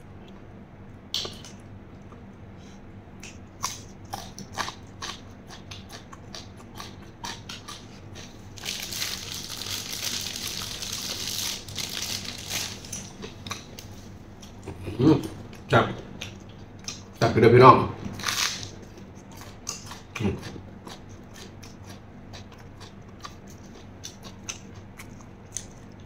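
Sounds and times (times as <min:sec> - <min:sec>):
wet chewing clicks and crunches: 0:03.2 - 0:14.7, 0:18.2 - 0:26.0.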